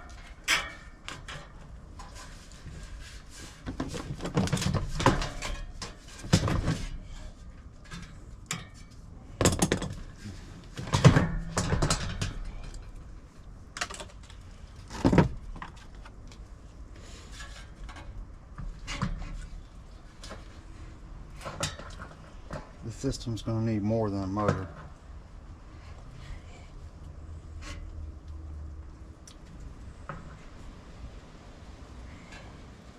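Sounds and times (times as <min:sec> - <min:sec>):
tools and metal parts clattering: 0:03.8 - 0:13.0, 0:21.3 - 0:22.8.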